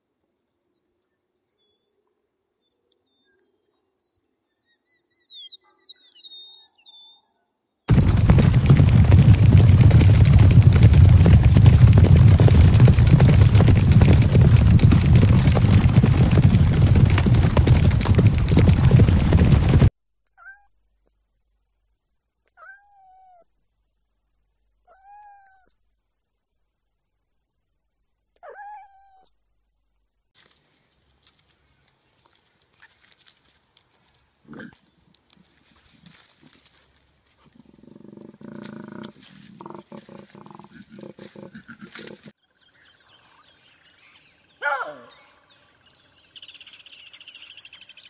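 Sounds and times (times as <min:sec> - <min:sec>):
faint bird chirps: 0:00.7 - 0:07.6
horses galloping hoofbeats: 0:07.9 - 0:19.9, 0:35.2 - 0:42.3.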